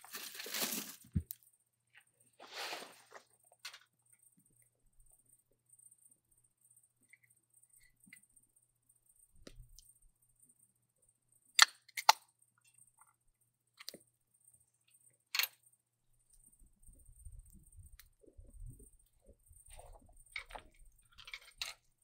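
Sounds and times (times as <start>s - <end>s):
soft handling noise: 0.0s - 3.9s, 16.4s - 22.0s.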